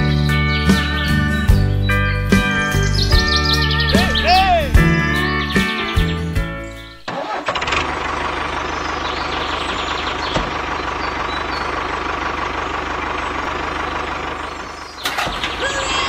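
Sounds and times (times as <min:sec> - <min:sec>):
small engine running: 0:07.1 - 0:16.0.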